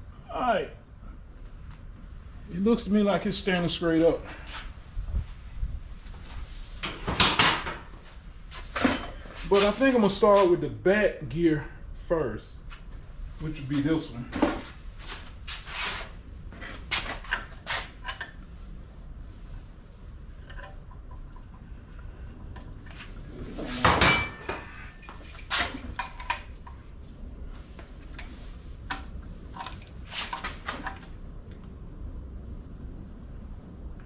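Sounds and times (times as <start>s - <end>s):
loud ringing metal clank: 23.8s - 25.1s
metal tools clinking and clattering: 23.8s - 26.4s.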